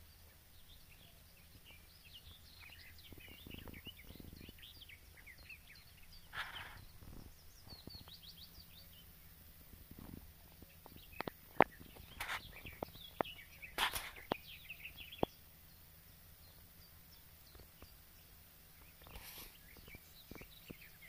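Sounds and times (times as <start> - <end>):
small birds chirping: 0.0 - 21.0
brief rustles: 6.2 - 7.9, 11.2 - 12.9, 13.7 - 14.4, 19.0 - 20.5.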